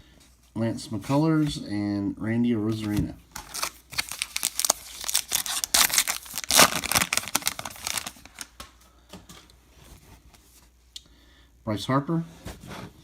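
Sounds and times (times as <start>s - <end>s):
foil wrapper tearing and crinkling: 3.4s - 8.6s.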